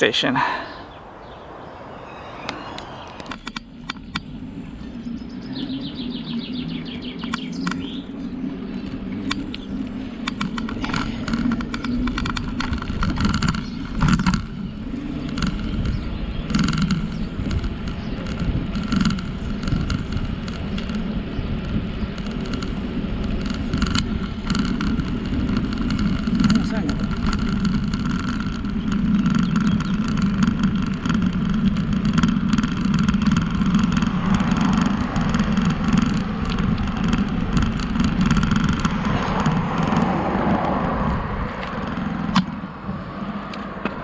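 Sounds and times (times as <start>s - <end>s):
bicycle tyres rumbling on path: 0.8s - 44.0s
bike clicks and rattles: 8.8s - 40.7s
freewheel ticking: 23.4s - 40.1s.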